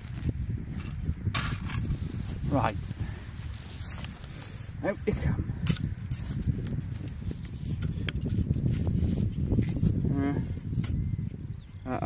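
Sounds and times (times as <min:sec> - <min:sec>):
hands working loose soil: 0:00.0 - 0:11.0
rustling scrape: 0:00.8 - 0:04.7, 0:06.0 - 0:10.0.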